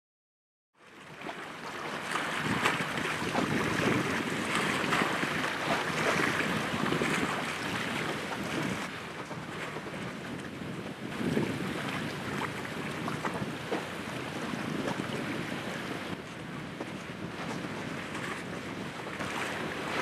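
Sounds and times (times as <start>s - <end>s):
sea water rushing: 0.8s - 20.0s
wind buffeting microphone: 1.0s - 20.0s.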